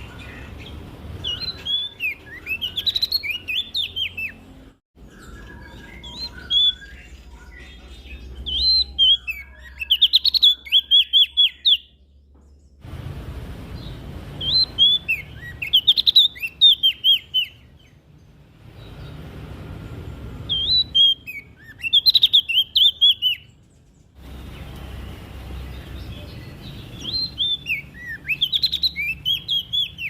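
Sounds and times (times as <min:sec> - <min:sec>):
warbler singing rapid chirps: 0:00.0 - 0:30.0.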